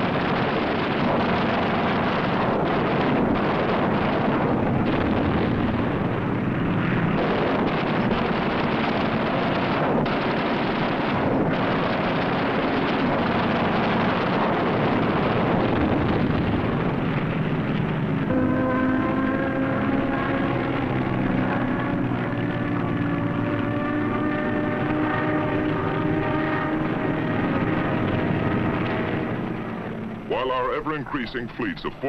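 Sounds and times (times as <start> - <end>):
aircraft engines: 0.0 - 32.0
sharp cracks: 4.7 - 18.3
gunfire: 7.2 - 13.3.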